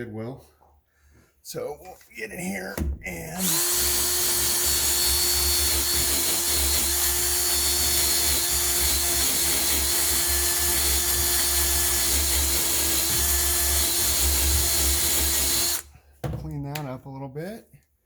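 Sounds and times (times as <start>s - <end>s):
electric drill running: 3.4s - 15.9s.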